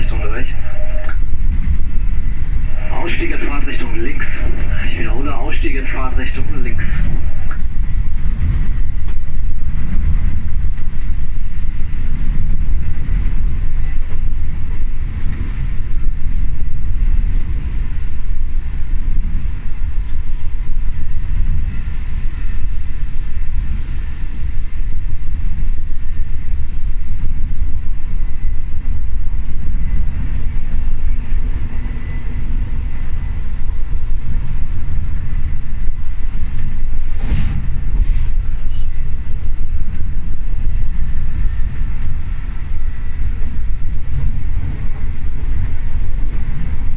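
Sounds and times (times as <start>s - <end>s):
train wheels rumbling: 0.0s - 46.9s
hiss: 4.2s - 11.0s, 29.2s - 35.5s, 37.0s - 38.4s, 43.6s - 46.9s.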